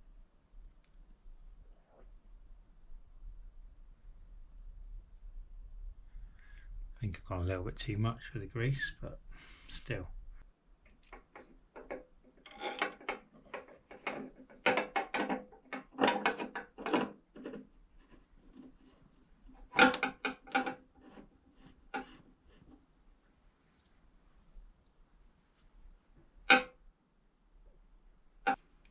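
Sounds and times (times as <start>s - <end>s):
metal parts scraping and clinking: 11.0s - 17.6s, 19.6s - 21.3s.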